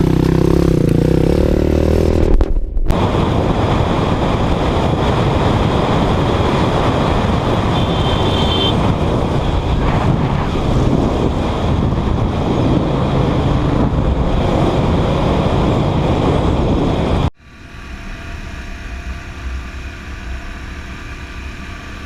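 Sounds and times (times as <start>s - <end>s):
motorcycle engine running: 0.0s - 22.0s
wind noise on microphone: 1.6s - 17.3s.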